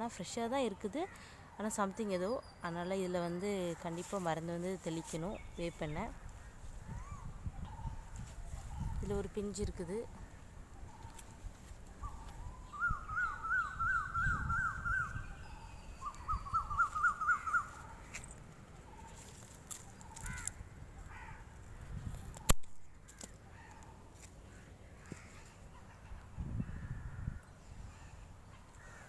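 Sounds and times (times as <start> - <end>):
bird calling: 10.1 - 18.2.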